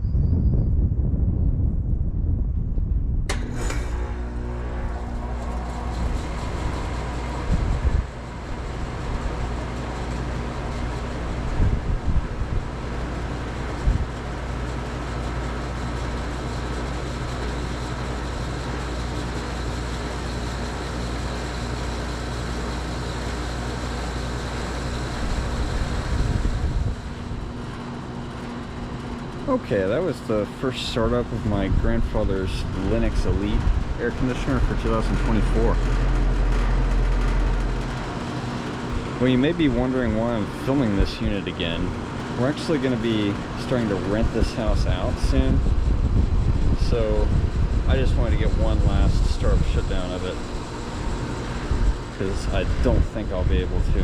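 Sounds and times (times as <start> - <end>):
wind gusts on microphone: 0.0 - 9.8, 10.4 - 14.2, 25.1 - 27.8, 31.0 - 42.0, 44.0 - 54.0
air conditioner compressor hum: 0.0 - 54.0
condenser fan whoosh: 0.0 - 54.0.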